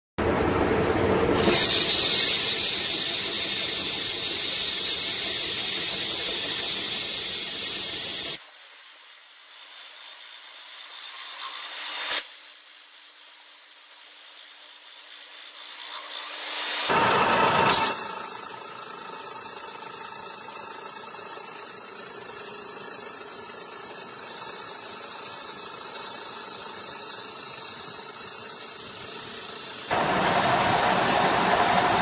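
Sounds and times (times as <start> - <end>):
lathe cutting hiss: 1.4 - 32.0
steady machine hum: 16.9 - 32.0.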